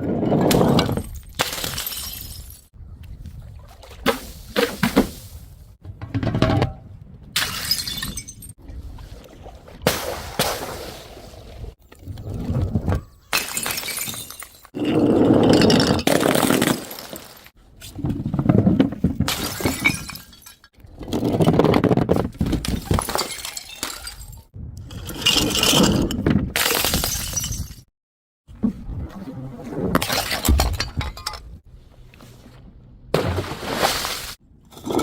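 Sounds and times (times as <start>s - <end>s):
glass bottles smashing: 0.9s - 2.7s, 7.4s - 8.5s, 13.3s - 14.7s, 19.3s - 20.7s, 22.7s - 24.4s, 26.6s - 27.8s.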